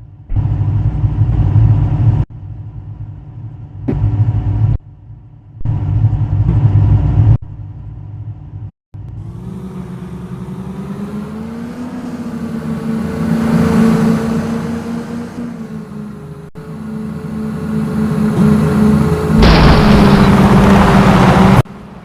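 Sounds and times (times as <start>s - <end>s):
car engines revving and accelerating: 9.0s - 22.0s.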